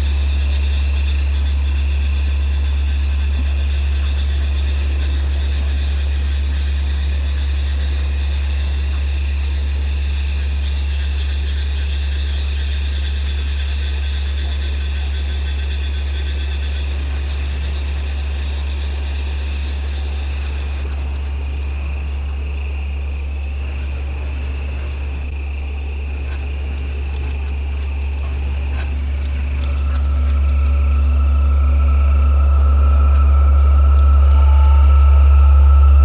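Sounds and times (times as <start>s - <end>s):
crickets and insects chirping: 0.0s - 36.0s
loud constant low hum: 23.1s - 36.0s
high pulsing chirp: 28.1s - 36.0s.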